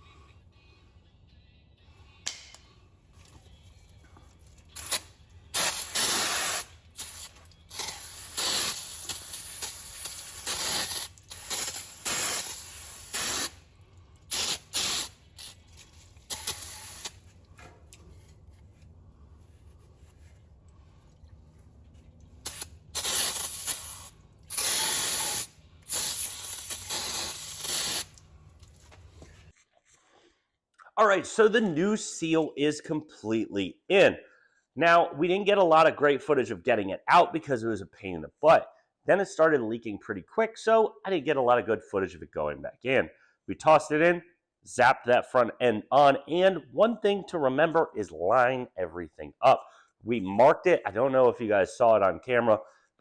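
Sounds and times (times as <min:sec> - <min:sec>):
pressurised spray hissing: 0:04.8 - 0:13.6, 0:14.3 - 0:17.3, 0:22.4 - 0:28.2.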